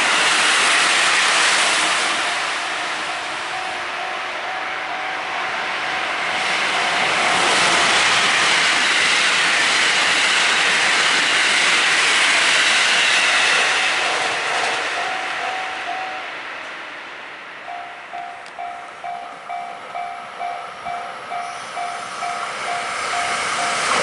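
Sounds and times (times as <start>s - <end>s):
electric train passing: 0.0s - 24.0s
level crossing warning bell: 2.2s - 7.4s, 14.9s - 16.4s, 17.6s - 24.0s.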